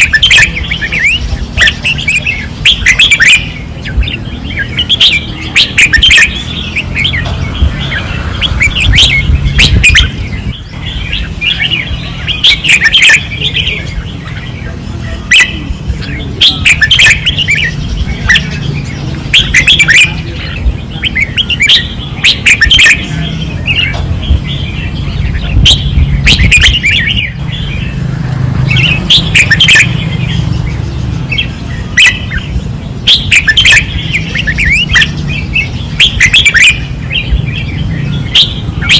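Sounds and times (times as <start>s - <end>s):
bulbuls singing: 0.0s - 38.9s
low rumble: 6.4s - 12.0s.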